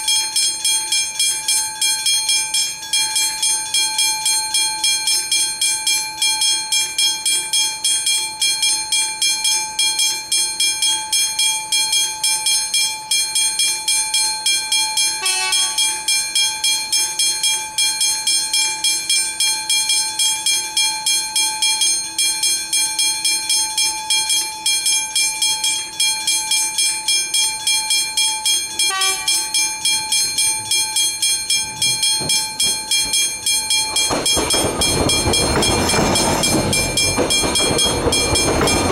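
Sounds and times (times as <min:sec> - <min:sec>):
level crossing warning bells: 0:00.0 - 0:38.9
approaching train: 0:15.2 - 0:15.8, 0:31.7 - 0:38.9.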